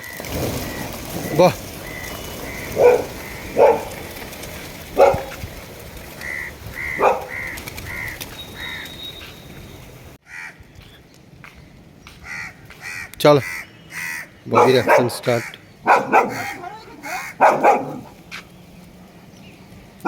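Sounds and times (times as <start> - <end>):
crows cawing: 0.6 - 4.1, 6.2 - 9.1, 10.2 - 10.6, 12.1 - 18.1
bird's short high calls: 6.2 - 10.0.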